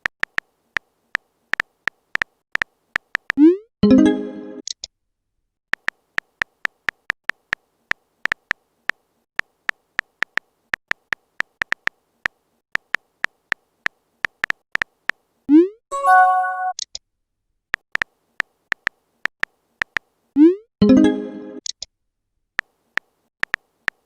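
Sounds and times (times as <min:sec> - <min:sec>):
brief chime: 0:15.9 - 0:16.8.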